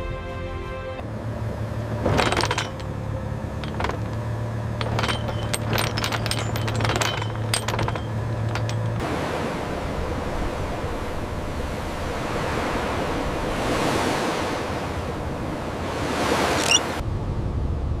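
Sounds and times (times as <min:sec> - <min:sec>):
music chord: 0:00.0 - 0:01.0
metallic clinks and jingles: 0:02.1 - 0:09.0.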